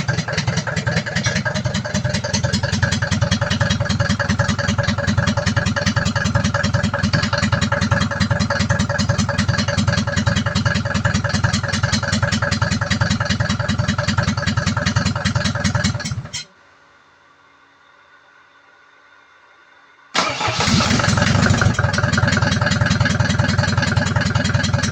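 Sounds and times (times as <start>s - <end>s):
engine running steadily: 0.0s - 16.4s, 20.2s - 24.9s
faint hum: 16.5s - 20.2s.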